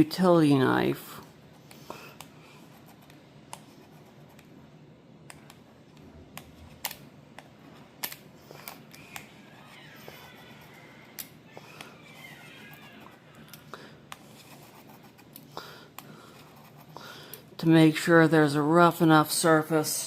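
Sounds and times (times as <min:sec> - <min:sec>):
knife scratching acrylic: 0:16.2 - 0:17.0.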